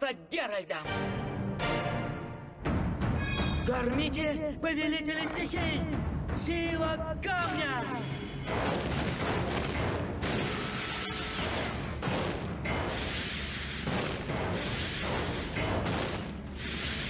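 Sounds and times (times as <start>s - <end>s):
soundtrack music: 0.9s - 4.8s.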